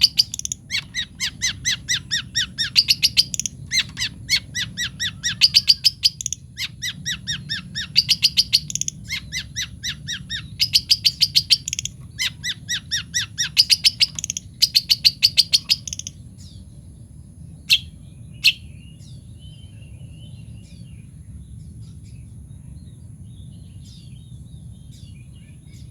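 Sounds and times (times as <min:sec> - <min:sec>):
shrike calling in bursts: 0:00.0 - 0:16.3
faint bird chirps: 0:00.0 - 0:17.0.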